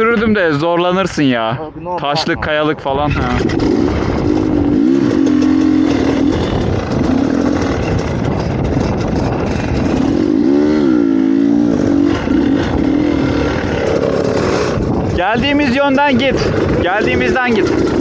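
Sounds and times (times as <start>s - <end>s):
dirt bike engine revving: 3.0s - 18.0s.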